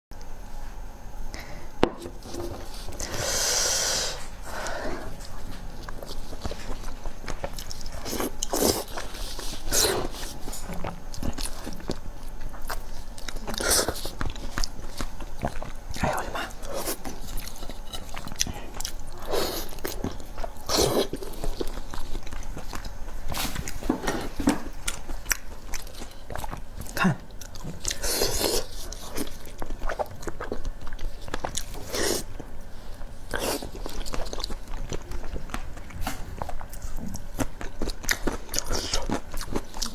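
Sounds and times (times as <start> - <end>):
person biting and chewing: 5.3 - 32.3.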